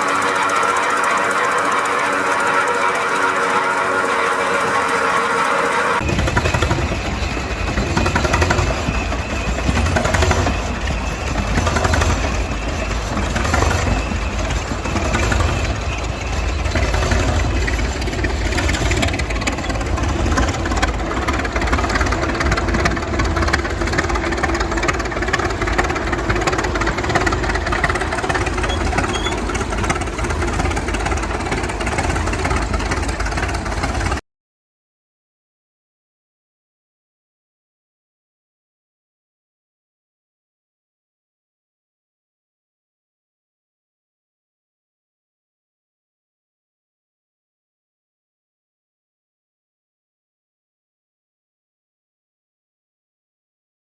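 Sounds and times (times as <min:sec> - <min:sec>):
old engine rumbling: 0:00.0 - 0:34.2.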